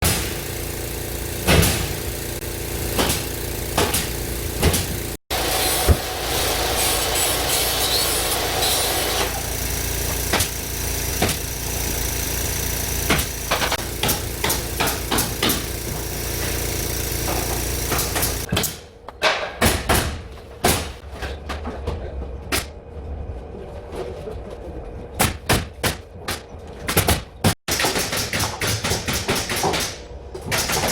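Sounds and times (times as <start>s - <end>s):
machine drone: 0.0s - 18.5s.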